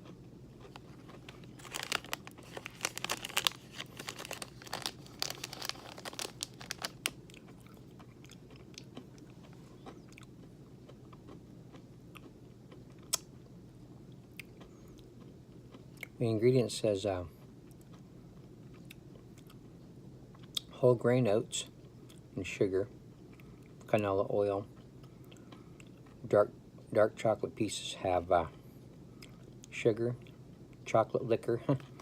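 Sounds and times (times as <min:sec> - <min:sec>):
person chewing crunchy granola bar: 0:00.0 - 0:13.3.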